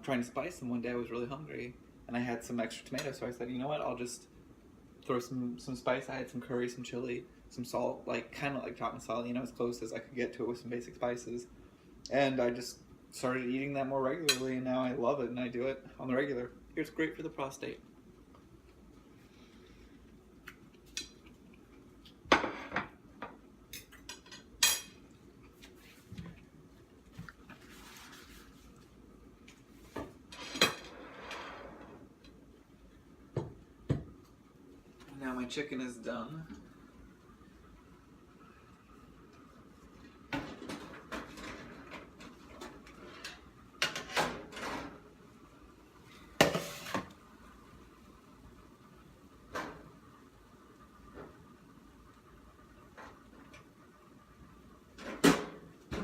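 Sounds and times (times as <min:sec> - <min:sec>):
pans and utensils clattering: 0:30.3 - 0:31.6, 0:40.3 - 0:45.0, 0:46.4 - 0:47.1.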